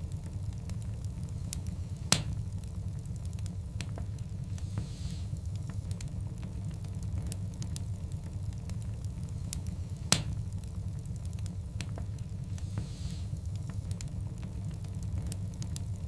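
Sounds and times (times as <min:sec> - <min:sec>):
wood fire crackling: 0:00.0 - 0:16.0
loud sharp pop: 0:10.1 - 0:10.4.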